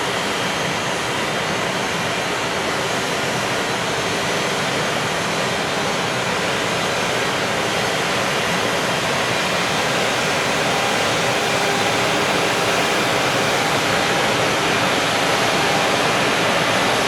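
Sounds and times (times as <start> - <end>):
freight train wheels rushing on track: 6.0 - 17.0.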